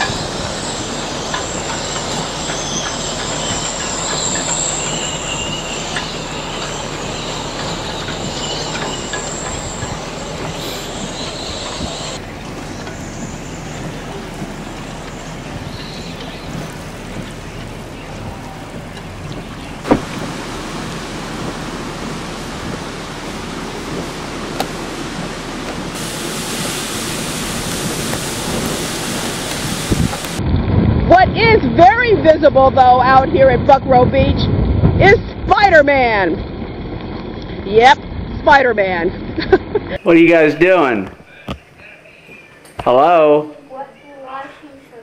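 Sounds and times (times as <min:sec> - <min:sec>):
high wind whistle: 0:00.0 - 0:17.0, 0:19.8 - 0:36.2
strong storm wind: 0:00.0 - 0:41.4.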